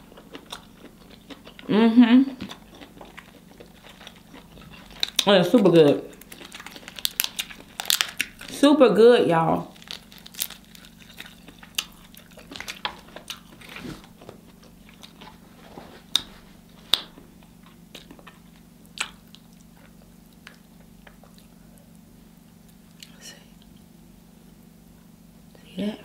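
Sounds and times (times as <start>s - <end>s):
chewing and lip smacking: 0.0s - 1.7s, 2.3s - 8.5s, 9.9s - 15.4s, 16.0s - 22.0s
faint low hum: 0.0s - 26.0s.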